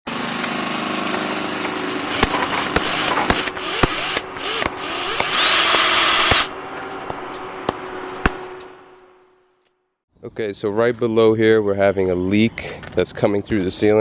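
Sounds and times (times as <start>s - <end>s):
power tool running: 0.1s - 8.7s
sharp knocks: 2.1s - 8.7s.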